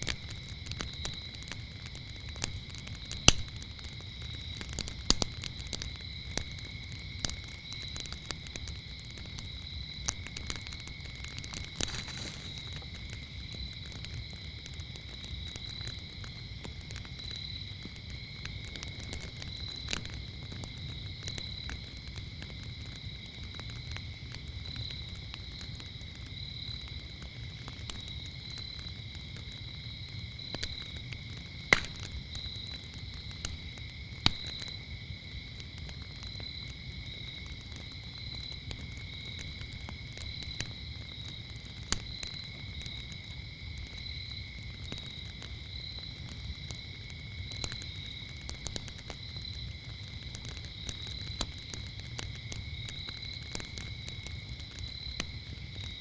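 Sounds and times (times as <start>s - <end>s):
crickets chirping: 0.0s - 56.0s
wood fire crackling and popping: 0.0s - 56.0s
low steady rustle: 11.5s - 13.0s.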